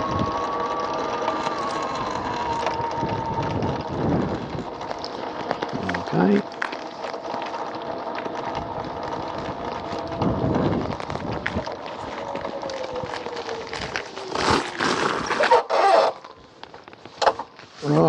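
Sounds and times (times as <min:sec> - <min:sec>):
electric scooter motor whine: 0:00.0 - 0:18.0
rustling bursts: 0:00.0 - 0:18.0
wind noise on microphone: 0:02.0 - 0:04.8, 0:08.6 - 0:15.4.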